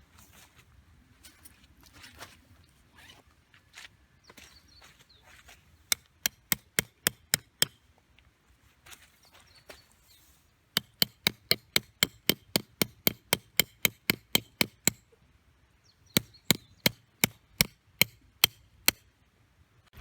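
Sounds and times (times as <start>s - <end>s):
hammer driving tent stakes: 5.9s - 7.8s, 10.8s - 15.1s, 16.2s - 19.1s.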